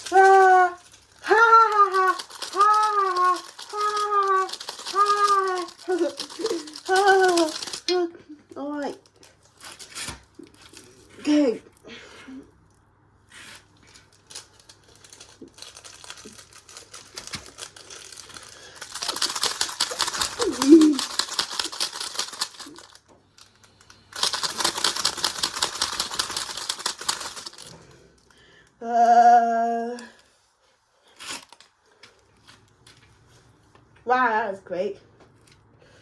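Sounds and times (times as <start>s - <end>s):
toy washing machine running: 0.0s - 8.0s, 17.2s - 23.0s, 24.1s - 27.9s
objects rattling inside: 0.0s - 9.8s, 13.9s - 28.3s.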